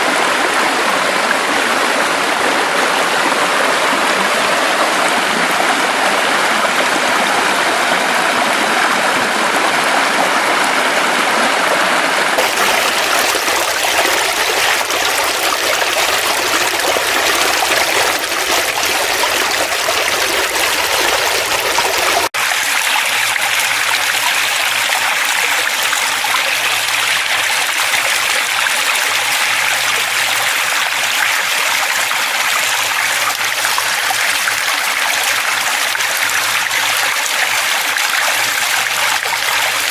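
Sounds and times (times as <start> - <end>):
stream flowing: 12.4 - 39.9.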